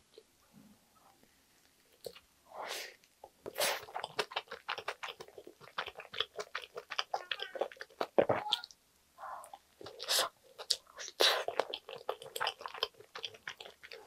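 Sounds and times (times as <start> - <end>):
wet chewing smacks: 3.4 - 8.7, 9.5 - 14.0.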